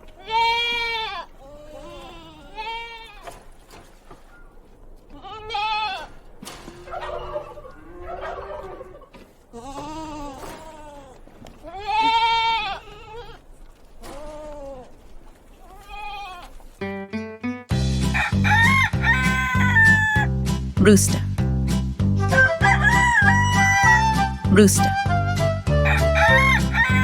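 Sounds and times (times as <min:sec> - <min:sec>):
goats bleating: 0:00.0 - 0:03.6, 0:05.1 - 0:06.4, 0:09.4 - 0:16.8.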